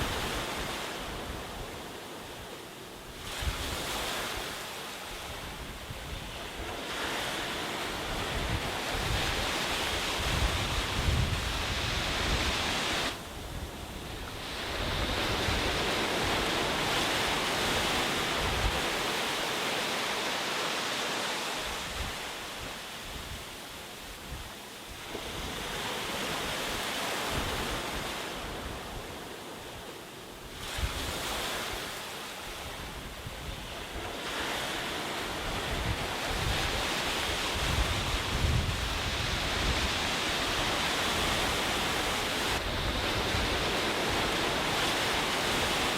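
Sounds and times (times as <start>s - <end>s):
sea waves breaking on beach: 0.0s - 45.9s
wind buffeting microphone: 5.2s - 19.1s, 32.6s - 45.9s.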